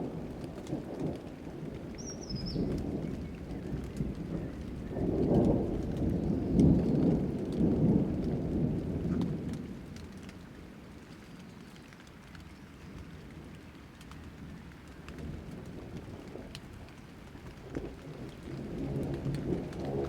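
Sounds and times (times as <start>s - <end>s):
thunder rolling: 0.0s - 10.0s, 15.2s - 20.0s
rain falling: 0.0s - 20.0s.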